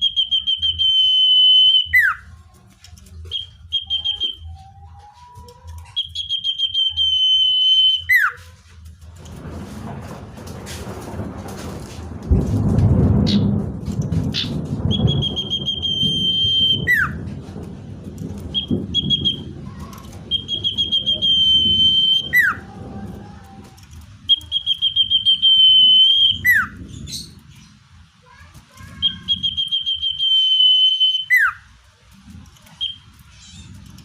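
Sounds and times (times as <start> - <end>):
bird whistling song: 0.0 - 2.4, 3.1 - 8.4, 14.3 - 17.3, 18.4 - 19.6, 20.2 - 22.7, 24.2 - 27.8, 28.9 - 31.7, 32.7 - 33.8
low rumble: 1.8 - 30.2.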